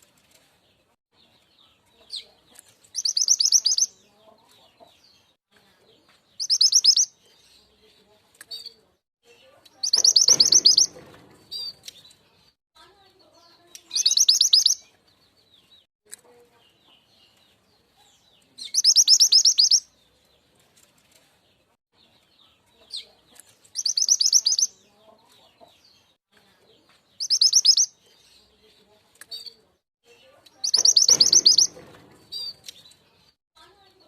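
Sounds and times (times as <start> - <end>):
songbird rattling trills: 9.8 - 11.8, 30.6 - 32.7
faint bird twittering: 13.9 - 14.8, 27.2 - 27.9, 29.4 - 32.7.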